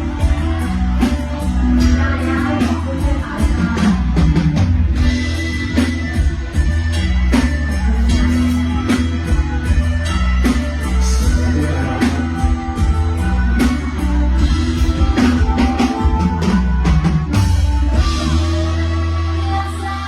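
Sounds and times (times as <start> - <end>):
drum kit beat: 0.0 - 19.3
electric guitar: 0.0 - 20.0
heavy bass: 0.0 - 20.0
live band playing: 0.0 - 20.0.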